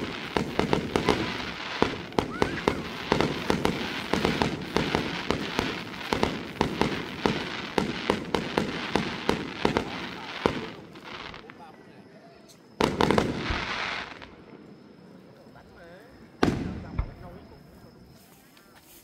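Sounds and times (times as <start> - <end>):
fireworks bangs and crackles: 0.0 - 11.7, 12.8 - 14.5, 16.4 - 17.6
rising firework whistle: 0.0 - 11.7.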